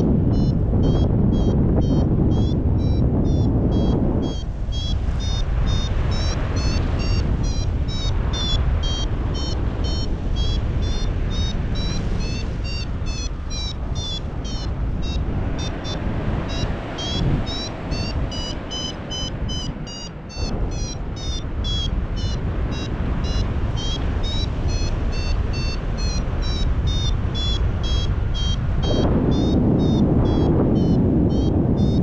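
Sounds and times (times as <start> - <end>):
variometer beeping rapidly: 0.0 - 32.0
wind rushing over microphone: 0.0 - 32.0.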